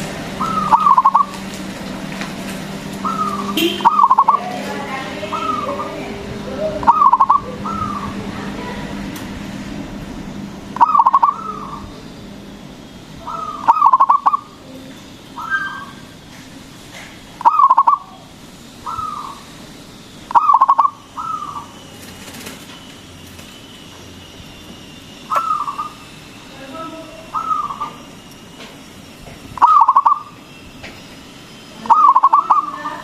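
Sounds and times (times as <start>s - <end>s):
dove cooing: 0.3s - 1.5s, 3.0s - 9.0s, 10.7s - 12.0s, 13.2s - 16.0s, 17.4s - 19.6s, 20.3s - 22.6s, 25.2s - 26.1s, 26.9s - 28.2s, 29.6s - 30.4s, 31.8s - 33.0s.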